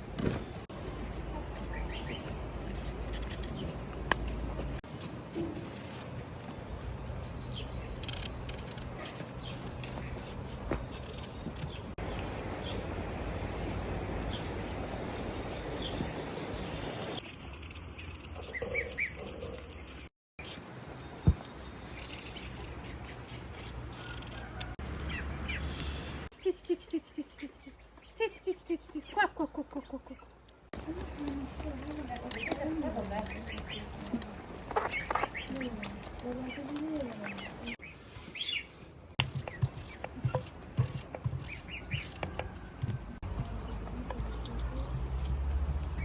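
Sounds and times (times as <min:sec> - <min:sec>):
birds chirping: 0:01.4 - 0:04.0, 0:27.4 - 0:44.6.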